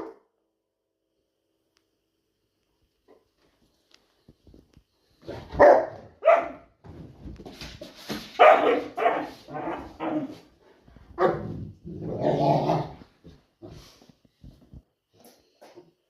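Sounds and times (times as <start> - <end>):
dog barking: 0.0 - 0.3, 5.3 - 6.7, 8.4 - 10.3, 11.2 - 11.5
dog growling: 11.4 - 13.1.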